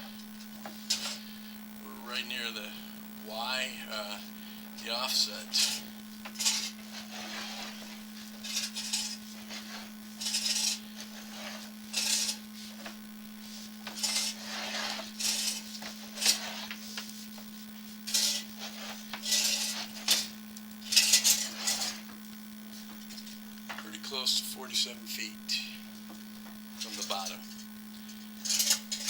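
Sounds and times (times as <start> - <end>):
steady electrical hum: 0.0 - 29.0
push rod scraping and rattling: 0.6 - 1.2, 5.3 - 13.0, 13.8 - 17.0, 18.1 - 22.2, 26.8 - 29.0.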